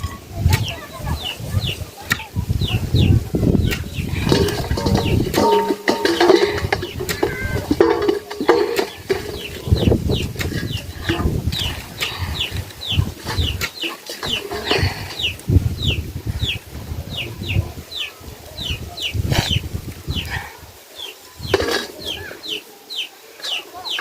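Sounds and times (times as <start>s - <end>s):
rustling and thumping: 4.1s - 15.7s.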